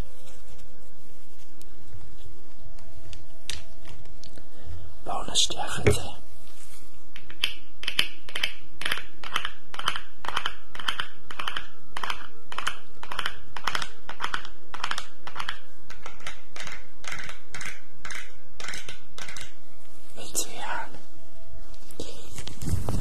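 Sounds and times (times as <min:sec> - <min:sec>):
scratchy strokes on microphone: 0:22.2 - 0:23.0.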